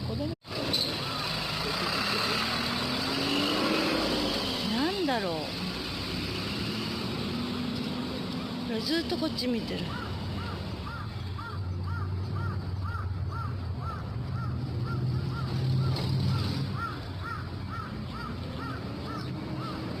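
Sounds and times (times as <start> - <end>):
bird calling: 9.7 - 20.0.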